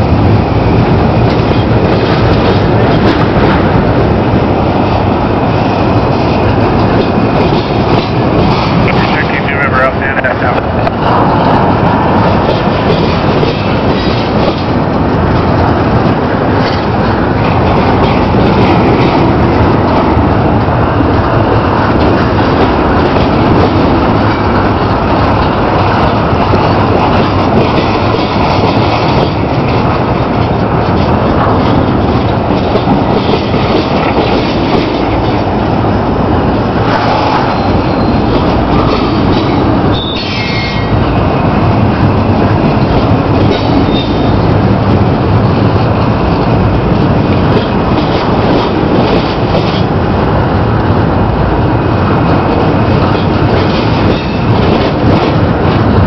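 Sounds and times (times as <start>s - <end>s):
freight train wheels rumbling: 0.0s - 56.0s
high wheel squeal: 37.1s - 39.0s, 39.9s - 41.0s.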